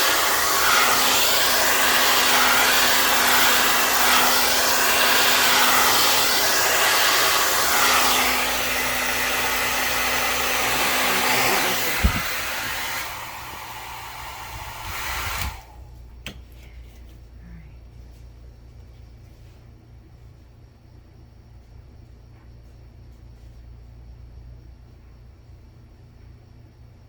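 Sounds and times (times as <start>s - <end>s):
hair dryer blowing: 0.0s - 15.8s.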